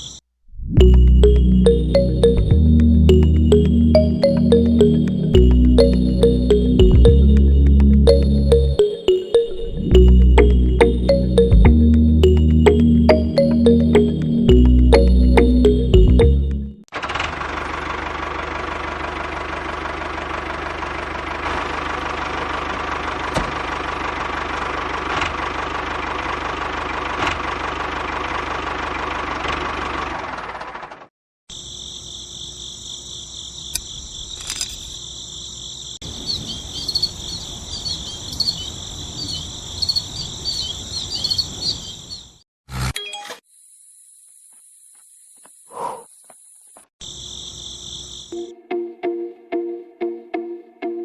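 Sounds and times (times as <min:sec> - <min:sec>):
crickets chirping: 0:00.0 - 0:00.2, 0:31.5 - 0:42.4, 0:43.5 - 0:48.4.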